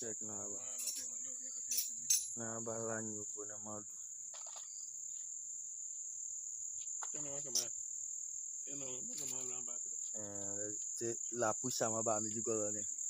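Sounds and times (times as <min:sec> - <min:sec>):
man speaking: 0:00.0 - 0:01.0, 0:02.4 - 0:03.9, 0:08.7 - 0:12.8
crickets trilling: 0:00.0 - 0:13.0.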